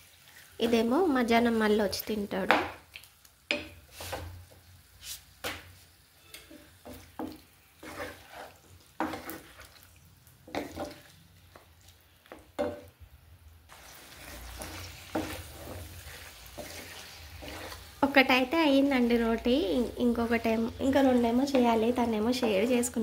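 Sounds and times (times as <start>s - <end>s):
food frying in oil: 0.0s - 23.0s
spatula scraping and knocking in pan: 3.5s - 4.6s, 5.4s - 11.7s, 12.3s - 12.9s, 13.7s - 18.0s, 18.8s - 23.0s.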